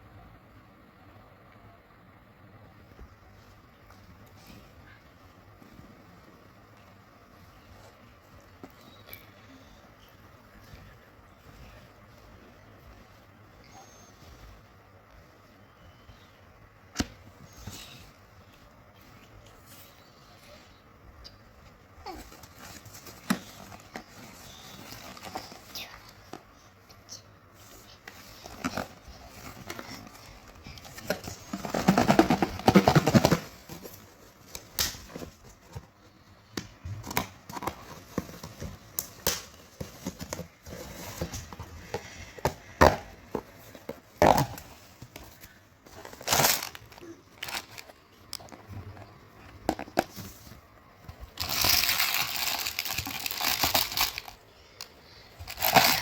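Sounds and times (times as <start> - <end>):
wrappers crinkling and tearing: 46.1 - 47.9, 51.4 - 54.4, 55.4 - 56.0.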